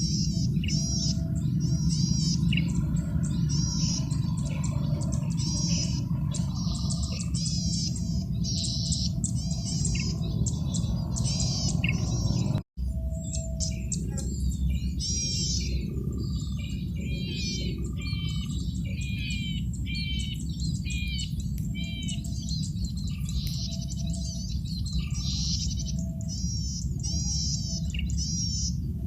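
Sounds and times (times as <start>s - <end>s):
bird buzzy chirps: 0.0s - 29.0s
steady low hum: 0.0s - 29.0s.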